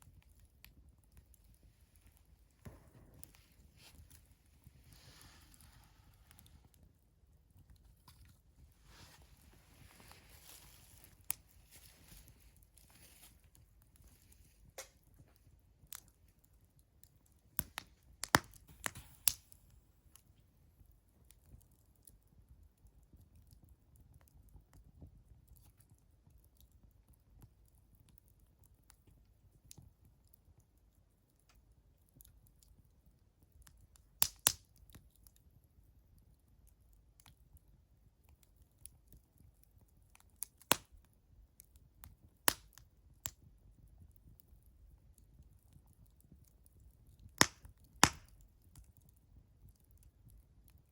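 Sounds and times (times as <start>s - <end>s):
faint low hiss: 0.0s - 21.4s
wood fire crackling: 0.0s - 50.9s.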